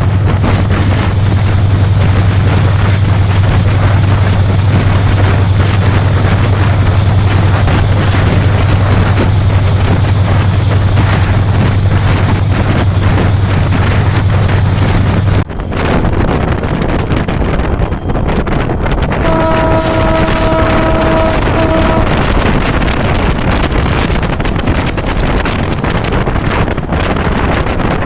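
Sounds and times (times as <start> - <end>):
locomotive engine drone: 0.0 - 28.0
wheels rushing on rails: 0.0 - 28.0
wind buffeting microphone: 0.0 - 28.0.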